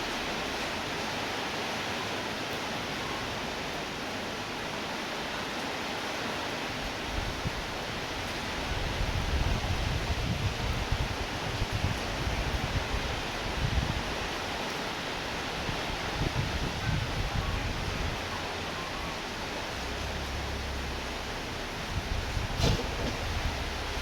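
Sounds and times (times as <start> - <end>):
falling rain hiss: 0.0 - 24.0
wind gusts buffeting microphone: 6.8 - 14.6, 15.2 - 24.0.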